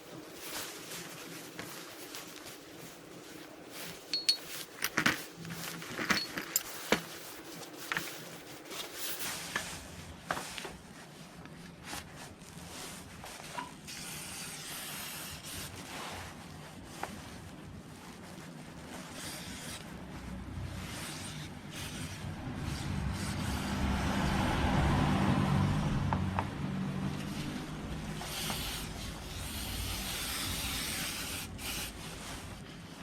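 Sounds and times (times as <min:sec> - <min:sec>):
metal clinks of hand tools: 0:04.1 - 0:05.0.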